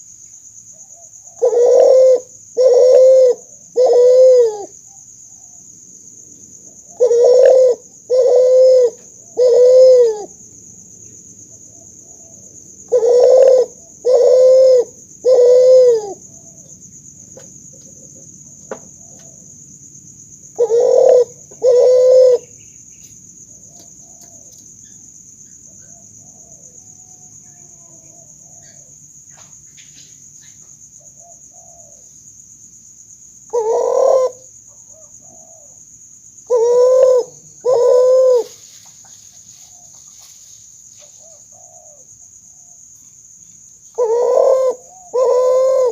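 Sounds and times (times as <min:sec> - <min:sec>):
dove cooing: 0:00.9 - 0:04.8, 0:06.8 - 0:10.4, 0:11.7 - 0:16.8, 0:20.5 - 0:22.6, 0:23.5 - 0:24.6, 0:25.7 - 0:29.0, 0:31.0 - 0:32.1, 0:33.5 - 0:35.8, 0:36.4 - 0:38.6, 0:41.0 - 0:42.8, 0:43.9 - 0:45.9.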